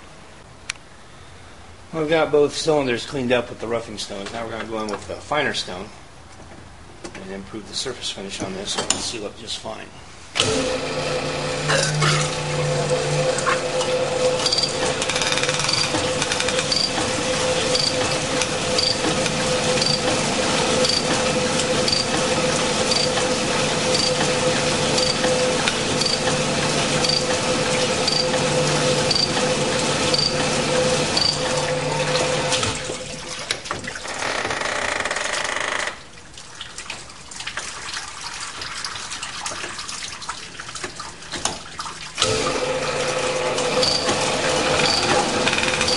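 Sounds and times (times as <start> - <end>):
honing machine hum: 10.4 - 32.8, 42.2 - 45.9.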